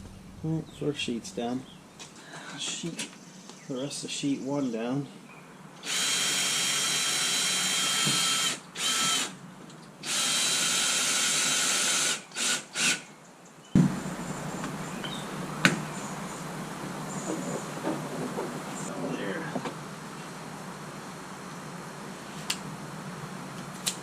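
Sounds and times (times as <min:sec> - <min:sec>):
low steady background: 0:00.0 - 0:07.0, 0:13.2 - 0:23.8
power drill running: 0:05.8 - 0:09.4, 0:10.0 - 0:13.0, 0:13.8 - 0:18.9.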